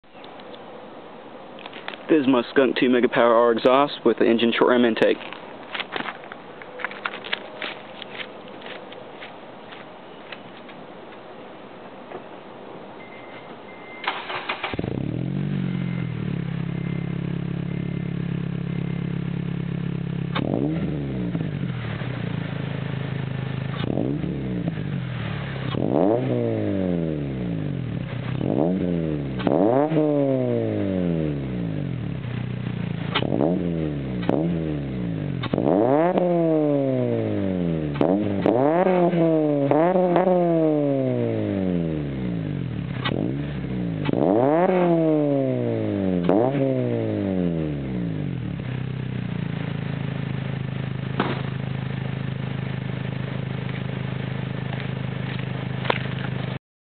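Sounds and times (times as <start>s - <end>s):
car engine idling: 14.1s - 26.2s, 47.7s - 56.6s
car engine revving: 14.1s - 56.6s.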